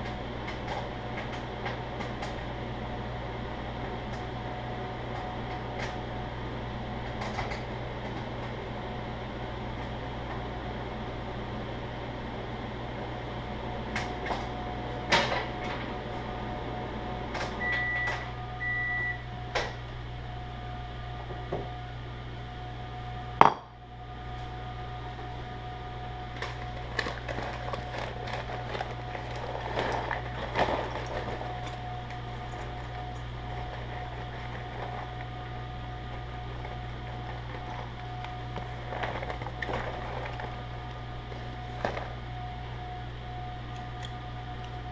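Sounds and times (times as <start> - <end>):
microwave oven humming: 0.0 - 44.9
short beeps: 17.6 - 19.2.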